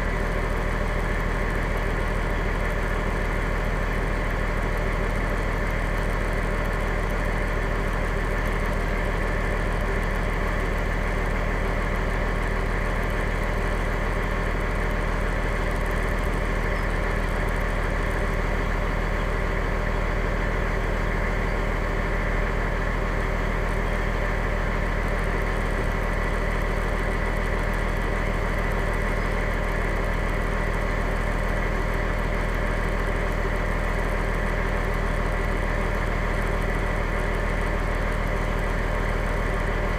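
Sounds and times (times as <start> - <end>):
fire engine idling: 0.0 - 39.9.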